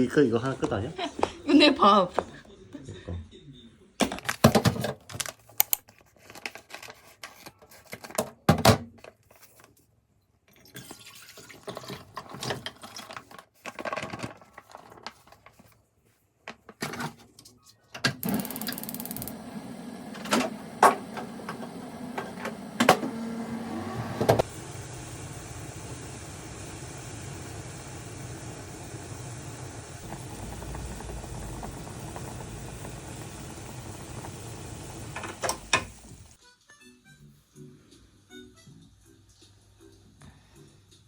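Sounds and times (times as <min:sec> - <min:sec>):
kitchen tap running: 0:18.2 - 0:23.6, 0:24.3 - 0:36.4.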